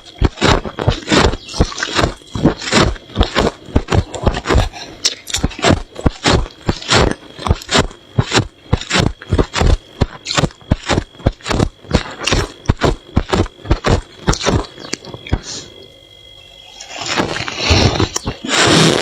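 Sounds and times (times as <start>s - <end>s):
frost crunching: 0.0s - 15.5s.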